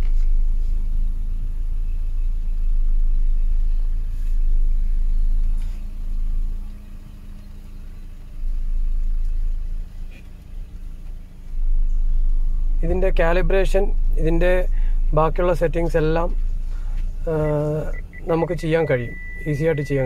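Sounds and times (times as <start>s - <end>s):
car engine idling: 0.0s - 20.0s
faint hum: 0.0s - 20.0s.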